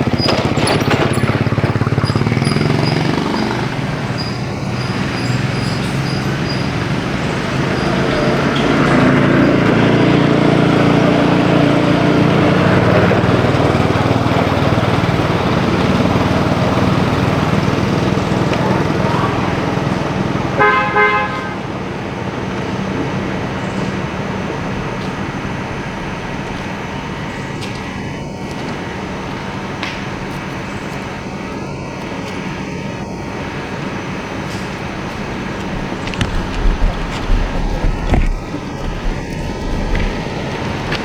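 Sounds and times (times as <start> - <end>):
road noise: 0.0 - 41.0
vehicle passing close: 0.0 - 41.0
vehicle horn toot: 16.9 - 28.4.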